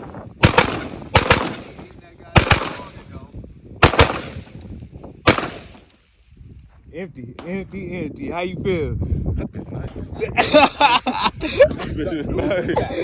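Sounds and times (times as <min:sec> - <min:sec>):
rifle shots: 0:00.4 - 0:01.8, 0:02.4 - 0:03.0, 0:03.8 - 0:04.6, 0:05.2 - 0:06.0.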